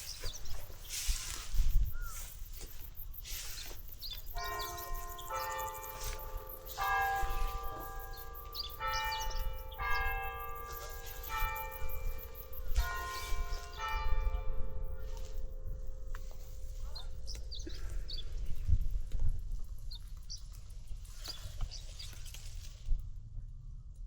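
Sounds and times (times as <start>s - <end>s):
bells struck at differing pitches: 4.4s - 18.1s
steady low rumble: 22.8s - 24.0s.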